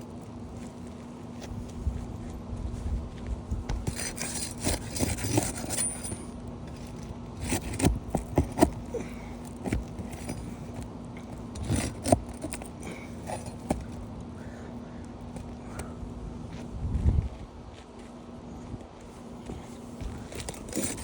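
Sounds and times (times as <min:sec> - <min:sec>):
metal bar scraping under shingles: 0:03.8 - 0:14.1, 0:19.5 - 0:21.0.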